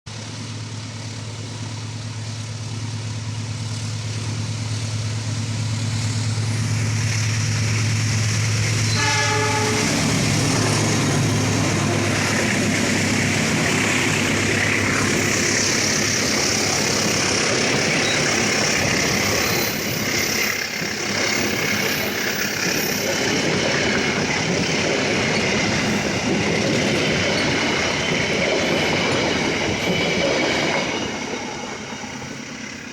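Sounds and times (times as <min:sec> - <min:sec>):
locomotive engine hum: 0:00.1 - 0:32.9
train wheels rumbling on rails: 0:00.1 - 0:32.9
train horn toot: 0:08.9 - 0:10.1.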